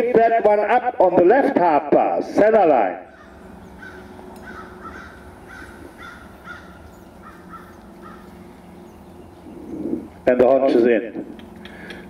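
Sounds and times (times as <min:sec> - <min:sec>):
bird calling: 0:03.0 - 0:10.3, 0:11.2 - 0:12.0.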